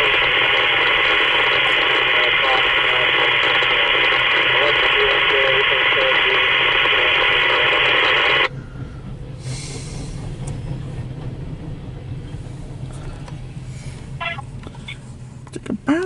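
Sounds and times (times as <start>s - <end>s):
scanner radio transmission: 0.0s - 8.5s, 14.2s - 15.0s
train rolling on track: 5.9s - 16.0s.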